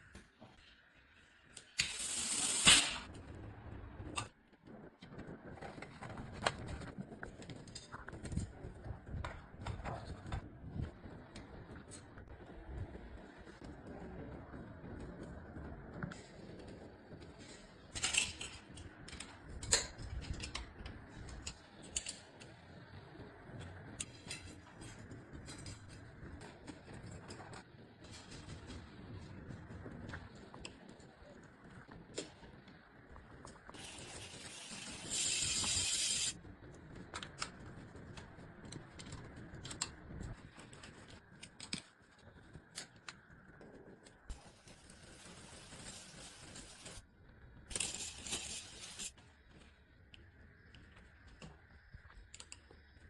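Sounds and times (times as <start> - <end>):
air hiss: 1.8 - 3.1, 33.8 - 36.4
metallic clicks of bicycle parts: 17.9 - 22.5.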